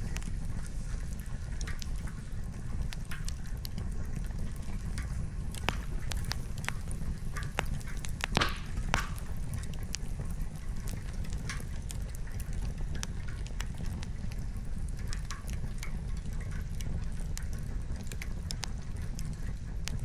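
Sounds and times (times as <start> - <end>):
campfire crackling and popping: 0.0 - 20.0
soft hiss of rain: 0.0 - 20.0.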